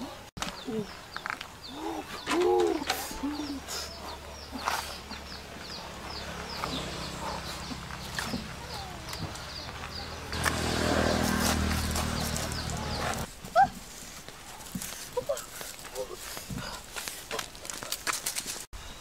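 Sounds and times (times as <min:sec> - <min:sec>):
bird cooing: 0:01.7 - 0:03.9.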